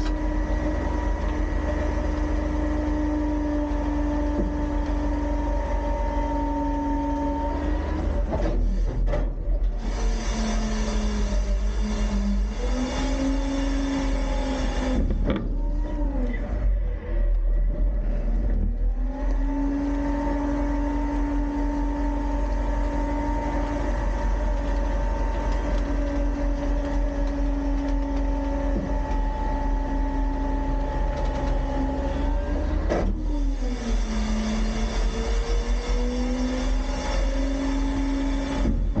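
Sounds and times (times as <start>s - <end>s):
garbage truck mechanical whine: 0.0s - 39.0s.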